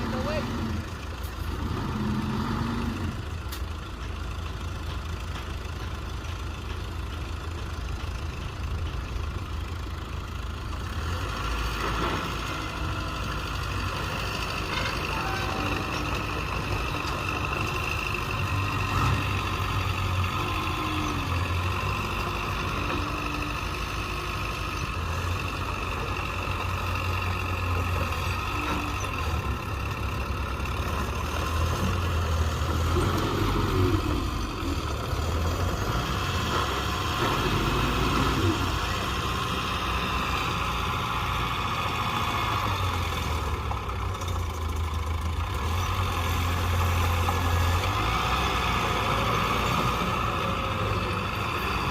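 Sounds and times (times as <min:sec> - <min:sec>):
bulldozer diesel engine droning: 0:00.0 - 0:51.9.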